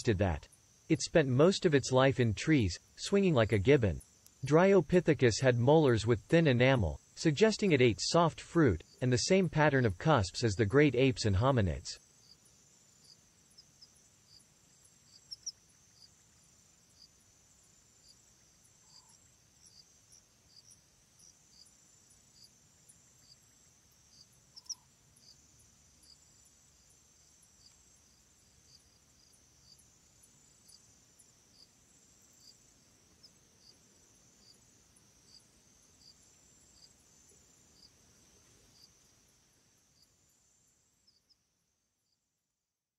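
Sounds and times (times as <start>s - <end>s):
insects trilling: 0.0s - 42.2s
insect chirps: 0.0s - 42.8s.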